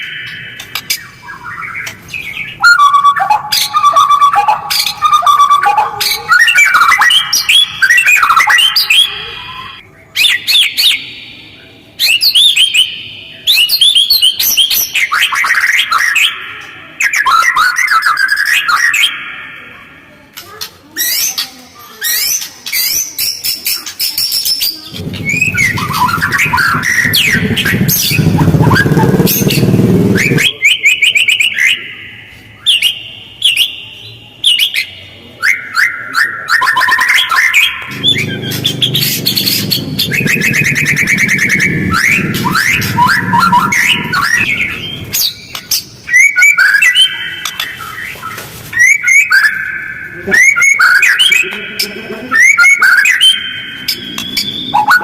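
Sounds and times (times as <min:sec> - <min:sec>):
bird singing whistles and chatter: 0:00.0 - 0:55.0
low noisy rumble: 0:24.9 - 0:30.6, 0:37.8 - 0:46.1.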